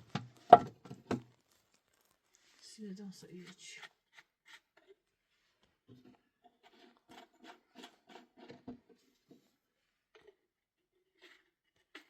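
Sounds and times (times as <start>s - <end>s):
faint rustles and clicks: 0.2s - 3.6s.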